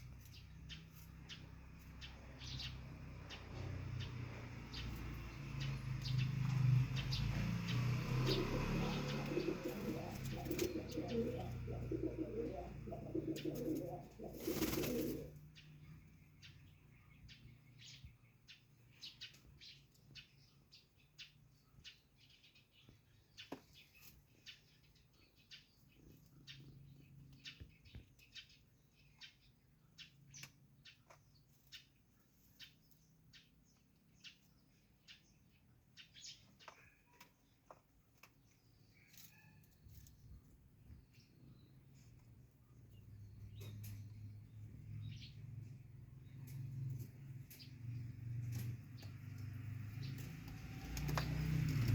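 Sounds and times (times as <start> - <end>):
pigeons cooing: 8.0 - 15.4
wings flapping: 9.4 - 11.0, 13.6 - 15.3
faint clicks and chirps: 25.5 - 31.9, 41.8 - 51.9.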